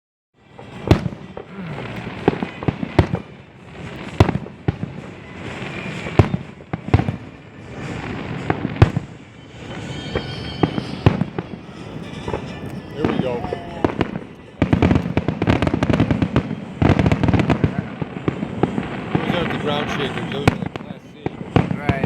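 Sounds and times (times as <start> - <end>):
continuous rumbling din: 0.5 - 22.0
firework shells bursting: 0.5 - 22.0.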